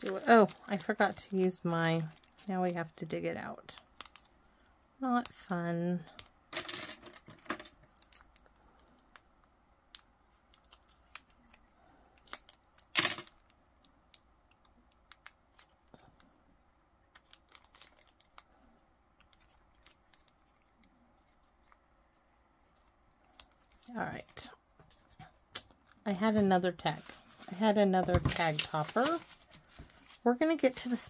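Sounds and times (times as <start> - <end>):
paper supplies rustling and clicking: 26.3 - 31.0.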